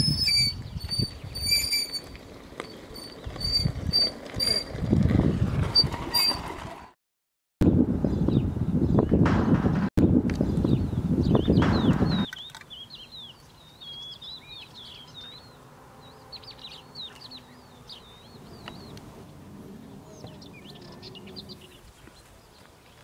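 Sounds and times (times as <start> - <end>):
songbirds twittering: 10.4 - 23.0.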